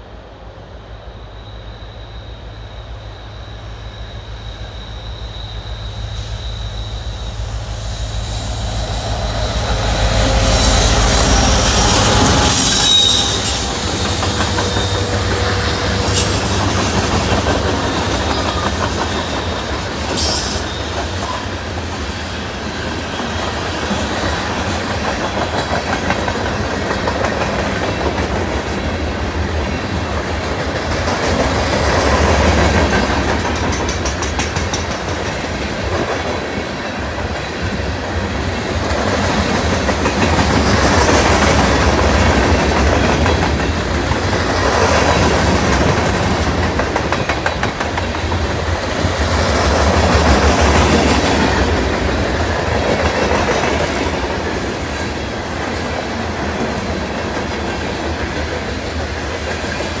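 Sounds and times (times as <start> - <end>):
steel wheels rumbling: 5.2 - 22.1
clickety-clack over rail joints: 14.0 - 22.1, 23.1 - 60.0.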